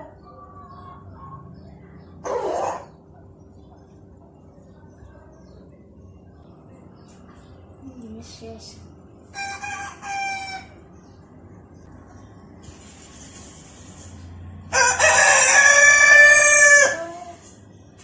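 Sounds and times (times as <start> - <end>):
rooster crowing: 9.3 - 10.8, 14.7 - 17.2.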